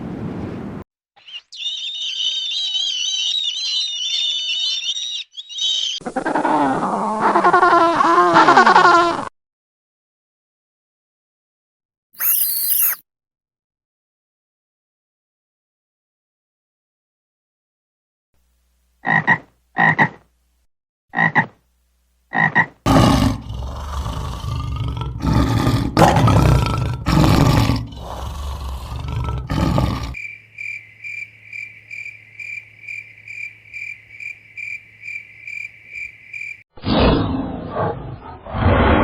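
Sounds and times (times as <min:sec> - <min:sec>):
high repeating chirp: 0:12.2 - 0:13.0
loud rough roaring calls: 0:22.9 - 0:30.2.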